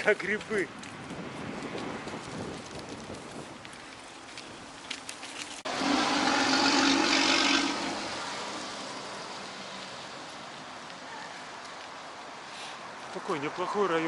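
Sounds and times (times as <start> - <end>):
car driving past: 5.7 - 10.2.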